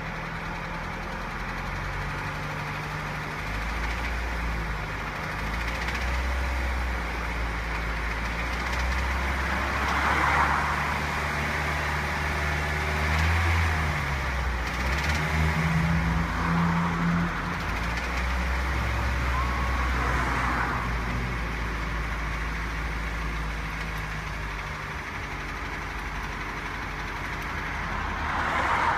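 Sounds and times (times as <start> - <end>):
metallic rattle inside engine: 0.0 - 10.5, 12.9 - 28.2
car engine revving: 7.8 - 28.9.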